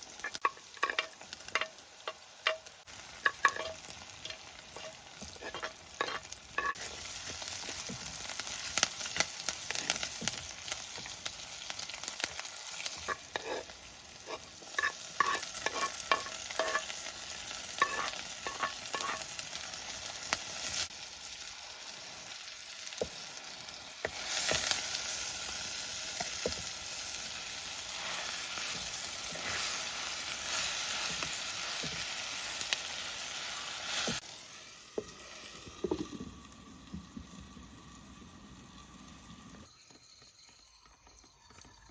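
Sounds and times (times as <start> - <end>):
food sizzling in oil: 0.0 - 41.9
metal spoon scraping a pan: 0.2 - 7.3, 12.8 - 19.4, 27.8 - 32.2.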